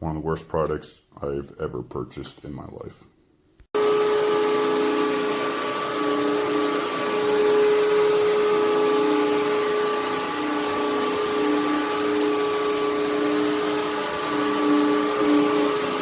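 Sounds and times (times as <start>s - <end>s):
vacuum cleaner running: 3.8s - 16.0s.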